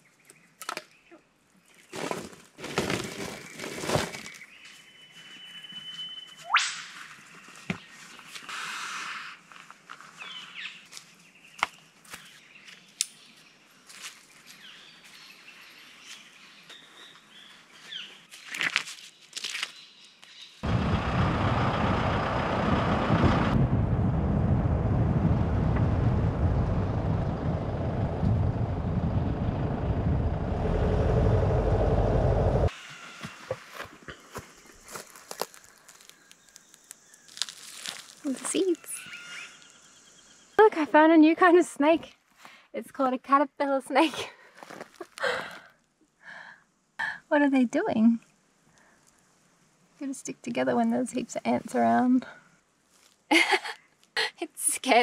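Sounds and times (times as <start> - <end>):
faint bird chirps: 4.2 - 8.3, 38.3 - 40.6
loud steady rushing noise: 22.3 - 32.7.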